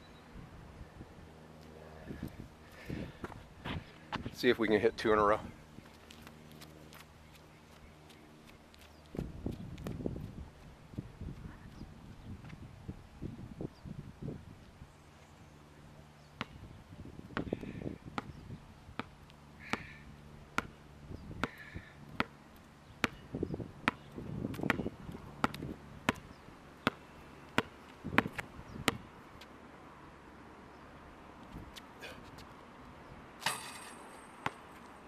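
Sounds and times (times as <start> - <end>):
basketball bouncing on hard court: 17.4 - 18.4, 19.0 - 19.9, 21.4 - 22.4, 23.0 - 23.2, 23.8 - 26.2, 27.6 - 29.0.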